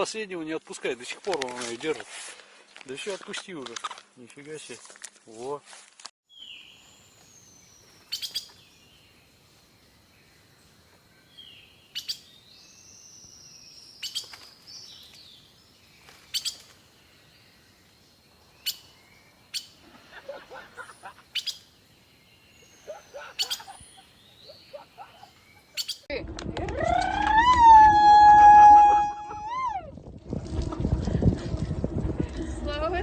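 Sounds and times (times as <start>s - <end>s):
birds chirping and twittering: 6.3s - 19.8s, 20.5s - 26.1s.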